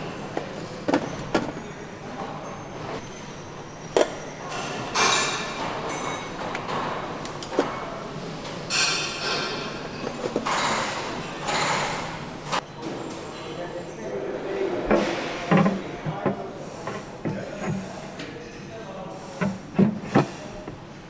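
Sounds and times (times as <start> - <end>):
steady background hum: 0.0 - 21.0
metal knocks and clanks: 14.8 - 17.9.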